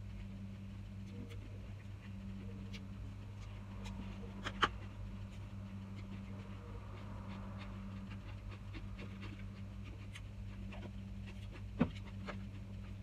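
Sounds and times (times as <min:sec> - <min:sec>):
low electrical hum: 0:00.0 - 0:13.0
person chewing: 0:03.8 - 0:12.6.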